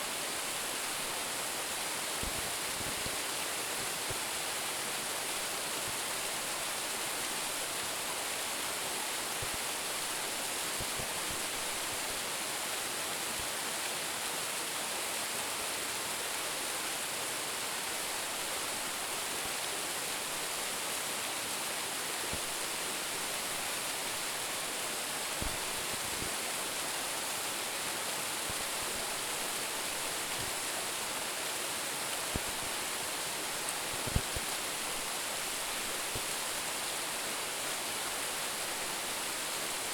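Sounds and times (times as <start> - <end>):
waterfall rushing onto rock: 22.2 - 39.9.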